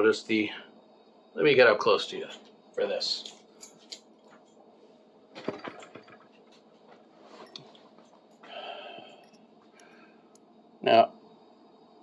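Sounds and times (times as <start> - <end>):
soft rustle: 6.4 - 8.2.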